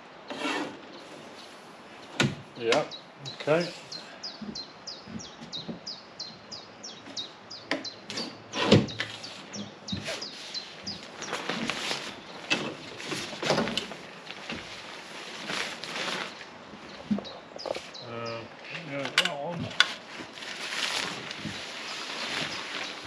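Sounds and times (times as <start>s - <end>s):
bird chirping: 2.6s - 12.7s, 16.3s - 18.8s
shade sheet rustling: 8.1s - 18.1s, 19.6s - 23.0s.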